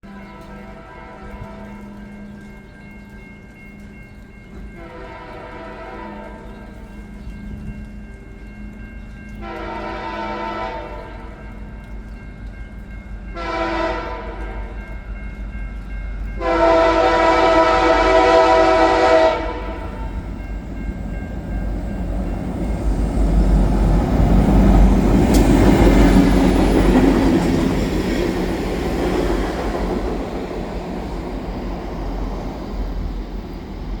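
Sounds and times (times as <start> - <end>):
train horn blasts: 0.0 - 2.0, 4.8 - 6.6, 9.4 - 11.5, 13.4 - 14.8, 16.4 - 20.3
train engine and wheel rumble: 0.0 - 34.0.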